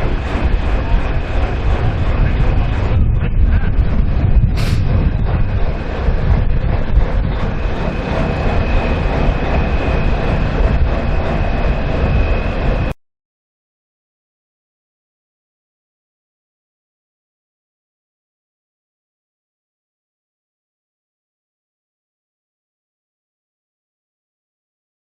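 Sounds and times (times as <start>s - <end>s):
short sharp click: 4.6s - 4.8s.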